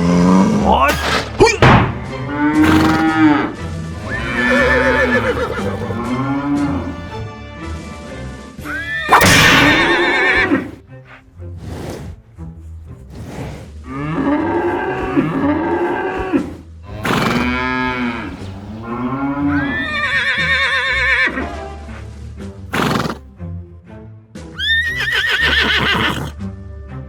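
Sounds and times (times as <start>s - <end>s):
horse neighing: 0.0s - 7.3s, 8.6s - 10.8s, 13.0s - 21.5s, 22.7s - 23.2s, 24.6s - 26.4s
background music: 0.0s - 27.0s
lower animal calls: 4.0s - 7.2s, 13.9s - 21.2s.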